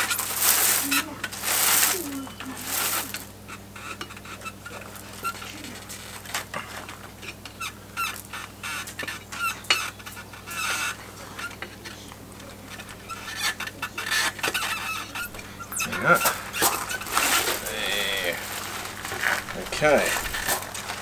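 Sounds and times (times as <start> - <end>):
wicker creaking and clicking: 0.0 - 21.0
hen clucking: 7.5 - 21.0.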